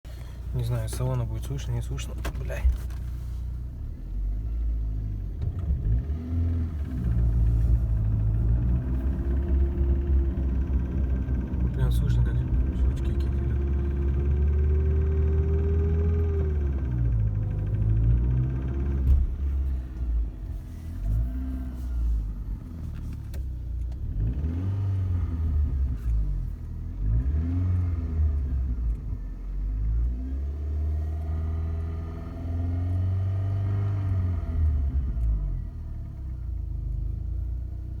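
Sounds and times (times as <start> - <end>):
engine knocking and clicking: 0.2 - 3.2, 6.7 - 20.1
car engine revving: 4.2 - 35.6.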